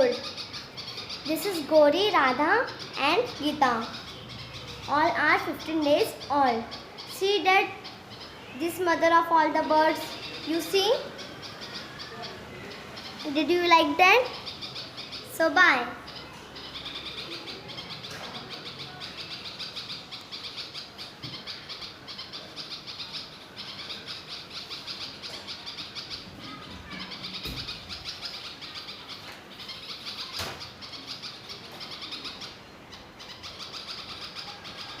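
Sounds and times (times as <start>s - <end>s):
nestling birds chirping: 0.0s - 35.0s.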